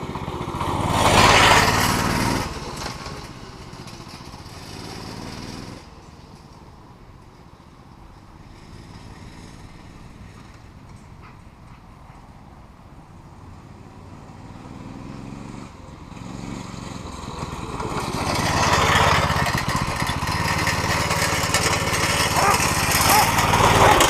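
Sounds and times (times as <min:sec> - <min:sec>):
small gas engine running: 0:15.1 - 0:24.0.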